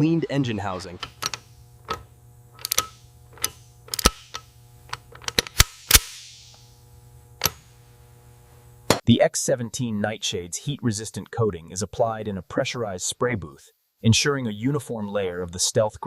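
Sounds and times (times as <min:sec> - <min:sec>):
low steady hum: 0:00.0 - 0:16.0
sharp clicks and knocks: 0:01.0 - 0:06.6
short hiss: 0:05.6 - 0:06.8.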